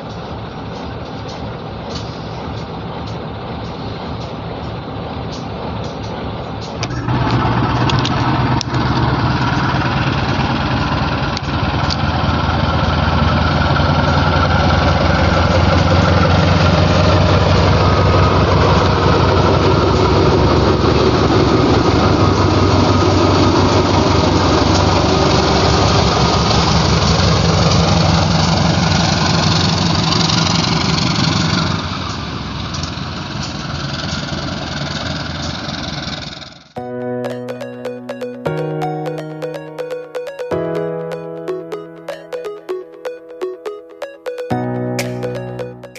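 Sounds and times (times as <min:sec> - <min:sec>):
wheels on rails: 0:00.0 - 0:36.8
locomotive engine drone: 0:00.0 - 0:45.9.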